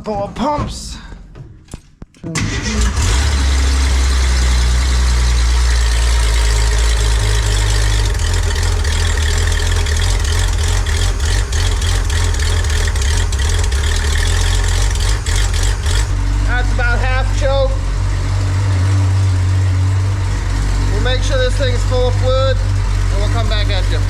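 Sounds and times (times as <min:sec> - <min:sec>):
van engine idling: 0:02.4 - 0:24.0.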